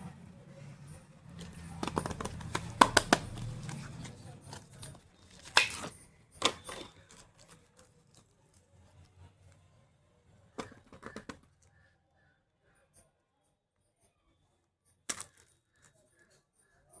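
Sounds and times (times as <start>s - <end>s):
makeup kit clicks and taps: 1.3s - 7.2s, 10.6s - 11.4s.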